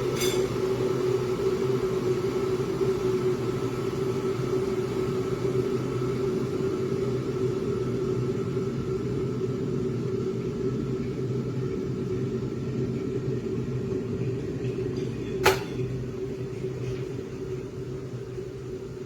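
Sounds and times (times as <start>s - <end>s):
kettle heating water: 0.0s - 19.0s
kettle switch click: 15.4s - 15.8s.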